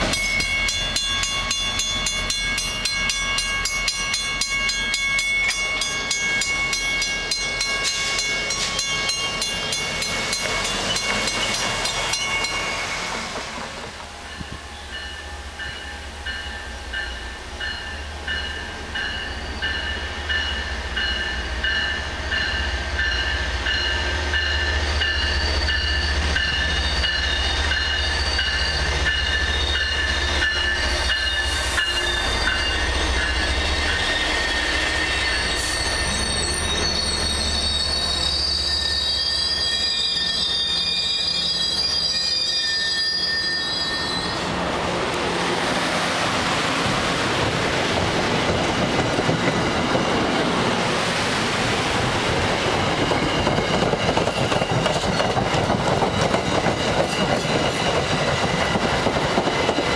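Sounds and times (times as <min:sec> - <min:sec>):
train bell ringing: 0:00.0 - 0:13.2, 0:14.3 - 0:44.5, 0:52.7 - 0:59.9
wheel and brake squeal: 0:24.6 - 0:44.5.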